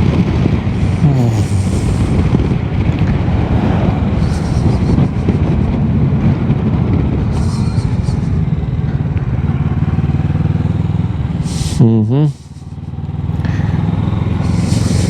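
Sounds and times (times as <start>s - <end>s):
wind buffeting microphone: 0.0s - 11.8s
motorcycle engine running: 0.0s - 15.0s.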